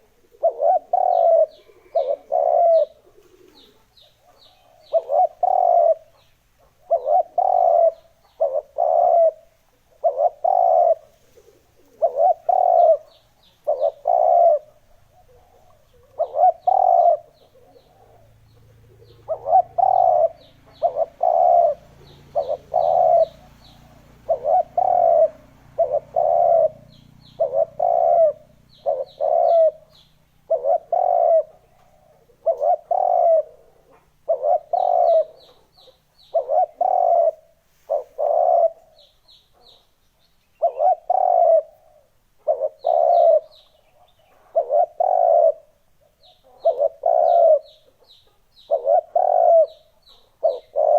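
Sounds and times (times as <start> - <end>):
doves cooing: 0.0 - 40.0, 40.6 - 50.9.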